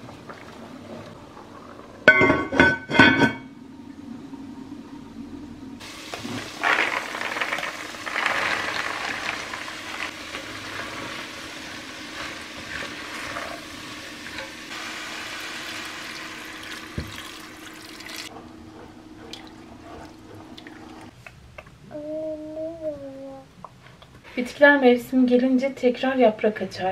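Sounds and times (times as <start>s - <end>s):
water running: 5.8s - 18.3s, 19.2s - 21.2s.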